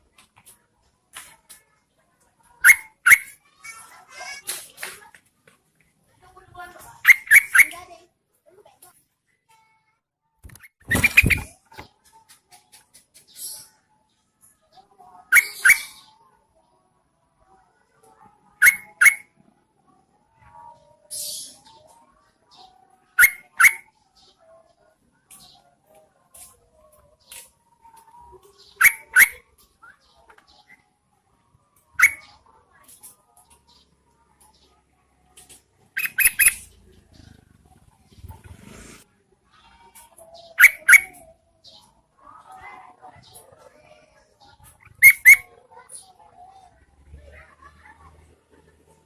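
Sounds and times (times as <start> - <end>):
bird calling sharp notes: 7.0 - 7.8
bird harsh rasp: 7.0 - 7.8, 10.5 - 11.6, 36.0 - 36.7, 38.2 - 39.0.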